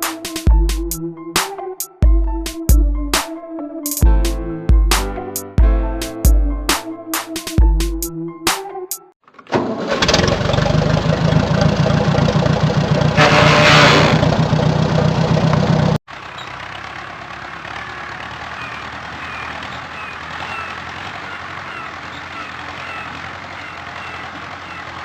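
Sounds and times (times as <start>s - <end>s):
engine running quietly: 9.3s - 25.0s
vehicle engine running loudly: 10.0s - 25.0s.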